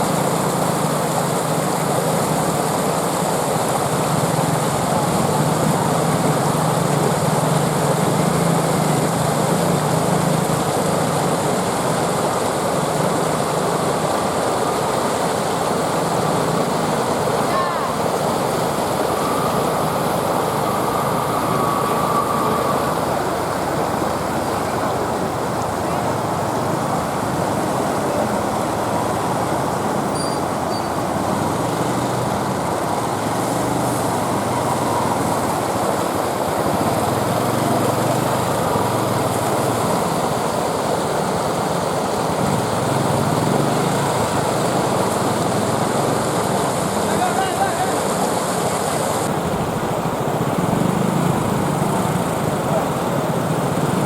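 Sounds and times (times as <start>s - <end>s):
motorcycle engines: 0.0s - 54.0s
traffic din: 0.0s - 54.0s
people's voices: 17.2s - 36.0s, 46.4s - 54.0s.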